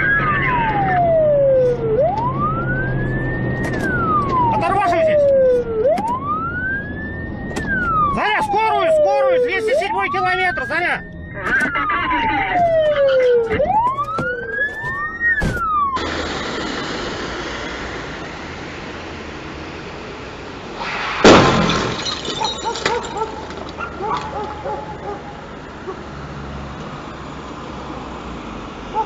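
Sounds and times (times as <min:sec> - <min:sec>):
emergency vehicle siren wailing: 0:00.0 - 0:21.4
road noise: 0:00.0 - 0:29.0
car crash impact: 0:14.8 - 0:19.5, 0:20.7 - 0:24.6
glass breaking: 0:20.8 - 0:24.3
debris clicking: 0:20.8 - 0:24.6.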